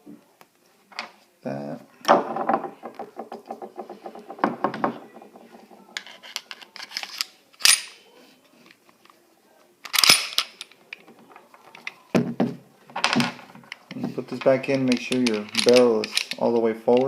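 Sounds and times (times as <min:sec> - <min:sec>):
pistol parts clicking: 0:06.0 - 0:08.0, 0:09.8 - 0:11.0, 0:14.9 - 0:17.0.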